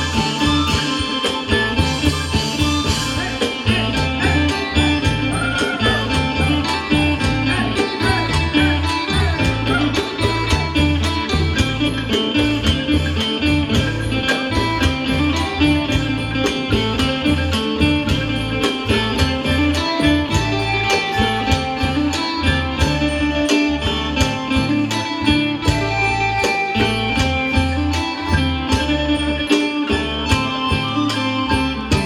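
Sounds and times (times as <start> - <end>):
fast percussion beat: 0.0 - 32.0
plucked strings folk music: 0.0 - 32.0.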